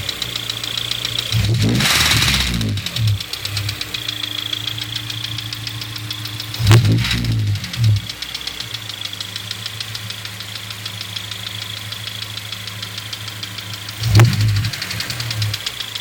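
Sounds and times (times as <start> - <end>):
car engine idling: 0.0 - 16.0
fast even engine ticking: 0.0 - 16.0
low bumps: 1.3 - 5.9, 6.5 - 8.2.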